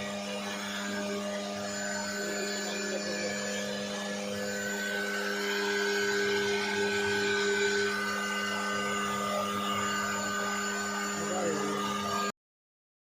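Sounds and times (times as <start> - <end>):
router spindle motor whining: 0.0 - 12.3.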